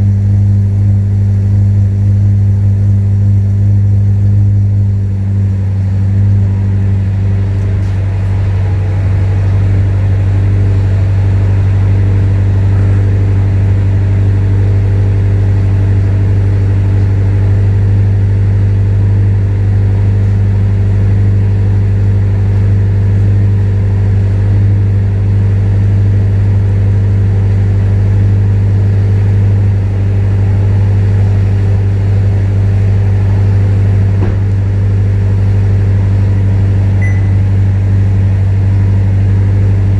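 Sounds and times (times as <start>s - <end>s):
car engine exhaust tone: 0.0s - 39.9s.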